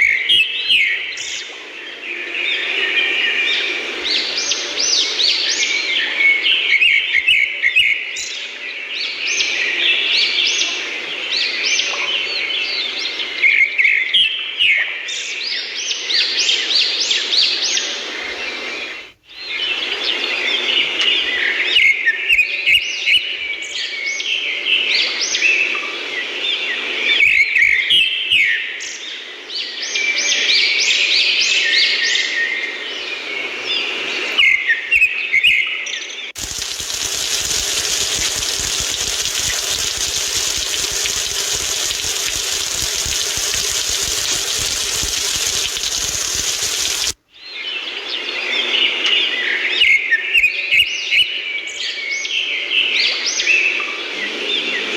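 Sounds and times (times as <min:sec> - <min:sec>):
birds chirping and twittering: 0:36.4 - 0:48.3.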